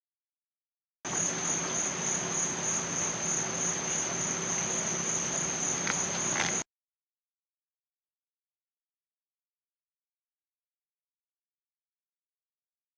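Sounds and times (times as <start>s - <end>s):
crickets trilling: 1.1s - 6.7s.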